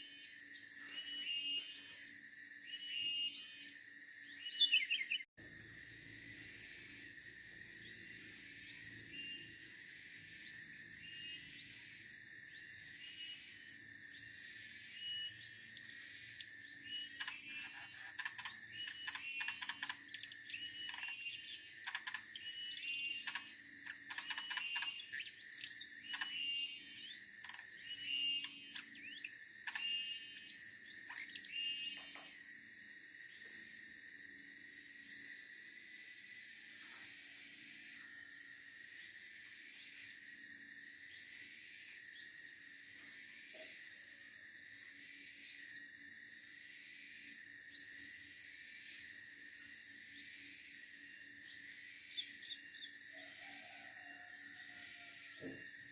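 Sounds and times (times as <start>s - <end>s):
bird song chirps and whistles: 0.0s - 5.3s, 10.4s - 11.9s, 12.5s - 32.3s, 51.5s - 53.8s.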